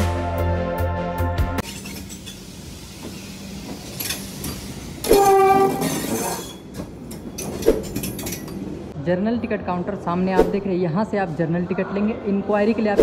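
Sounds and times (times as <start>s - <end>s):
train horn blast: 5.0s - 6.0s.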